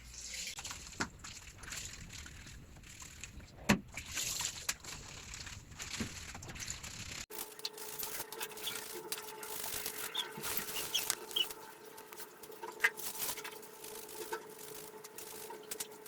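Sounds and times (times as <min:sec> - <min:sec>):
clothes scrubbed in soapy water: 0:00.0 - 0:16.0.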